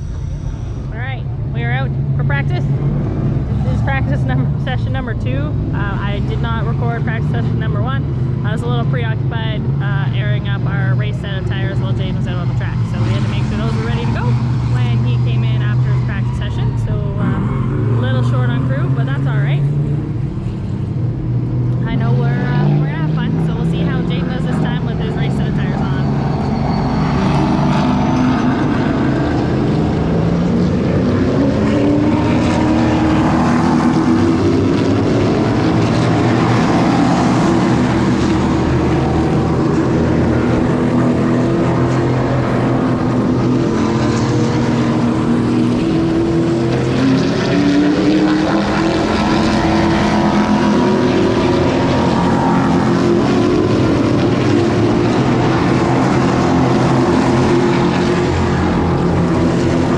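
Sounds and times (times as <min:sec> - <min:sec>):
race car engines: 0:00.0 - 0:59.9.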